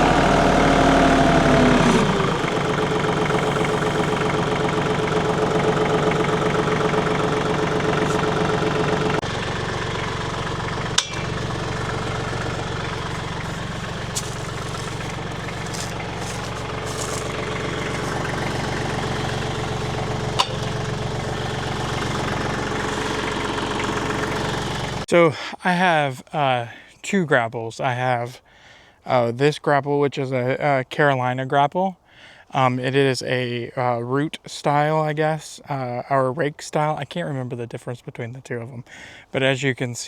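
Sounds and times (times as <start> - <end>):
tractor engine running: 0.0 - 25.1.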